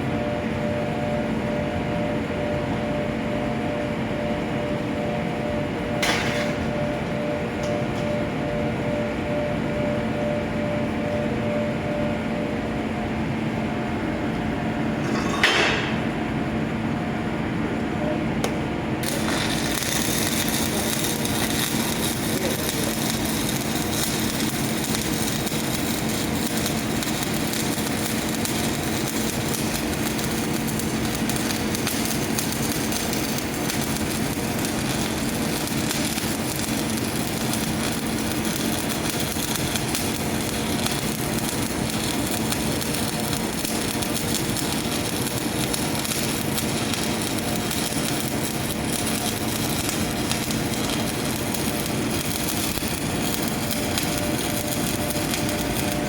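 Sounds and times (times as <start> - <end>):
welding arc crackling: 18.5 - 56.0.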